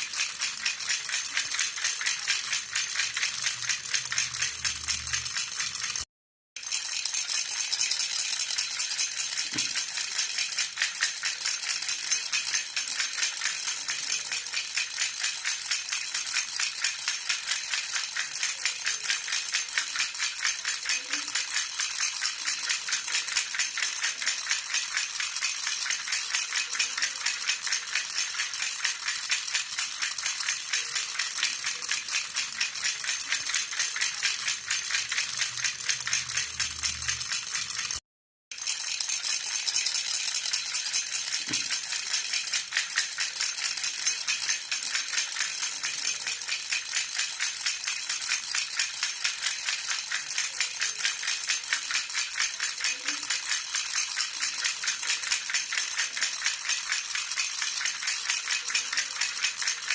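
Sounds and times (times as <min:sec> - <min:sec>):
baby rattle jingling: 0:00.0 - 0:59.9.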